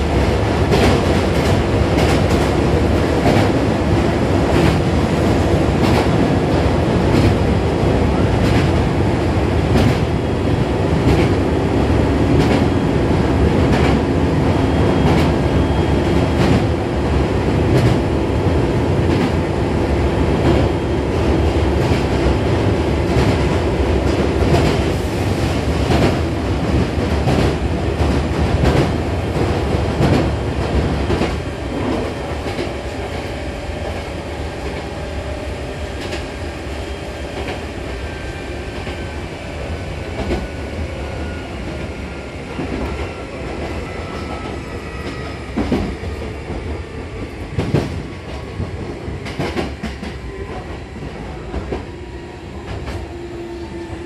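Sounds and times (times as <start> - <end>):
train rumble: 0.0 - 54.0
train running gear whine: 21.8 - 54.0.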